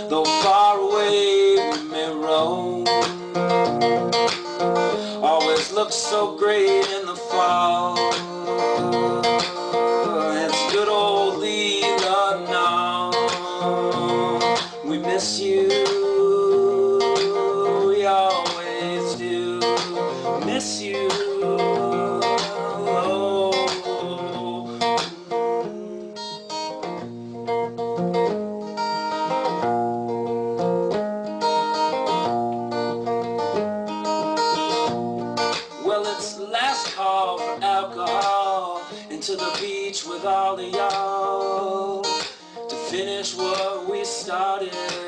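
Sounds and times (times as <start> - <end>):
acoustic guitar music: 0.0 - 45.0.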